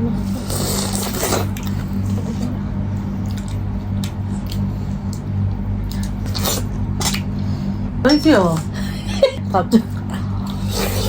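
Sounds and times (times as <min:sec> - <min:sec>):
steady low hum: 0:00.0 - 0:11.0
wet chewing and lip smacking: 0:03.2 - 0:07.3.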